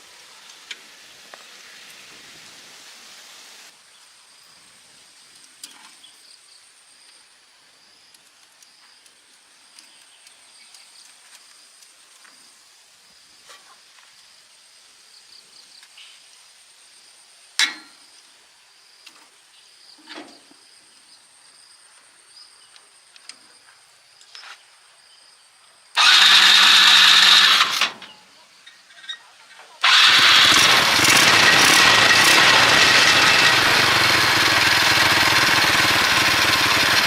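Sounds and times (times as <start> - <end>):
engine cranking: 26.0 - 28.1, 29.8 - 37.0.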